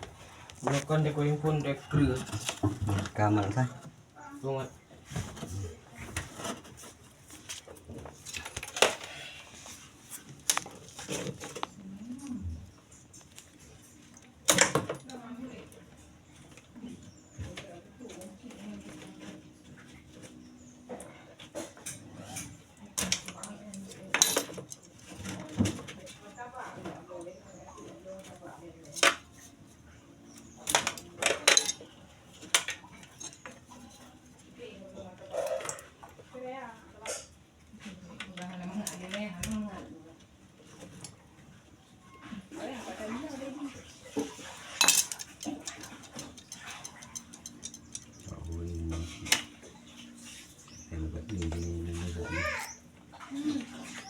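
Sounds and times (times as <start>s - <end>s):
metal clinks and knocks: 44.8s - 48.5s.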